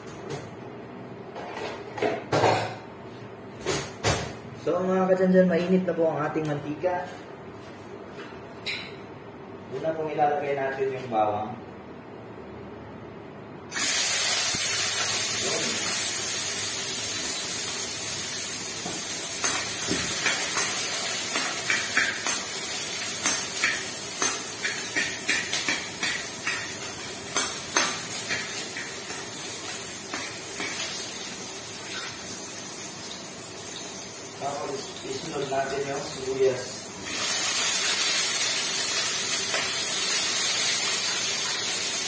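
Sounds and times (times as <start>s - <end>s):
garlic sizzling in hot oil: 13.7s - 35.2s, 37.0s - 42.0s.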